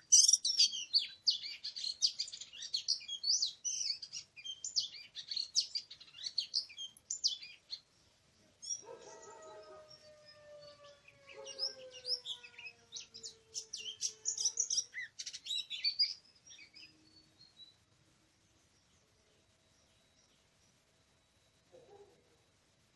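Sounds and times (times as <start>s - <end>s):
bird singing chirps and whistles: 0.0s - 7.8s, 8.6s - 17.8s.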